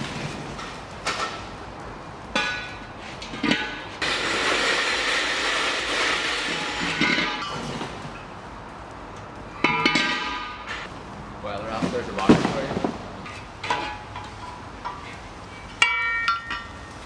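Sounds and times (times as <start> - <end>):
knocks and metallic clinks: 0.6 - 4.0, 6.8 - 10.9, 12.2 - 17.0.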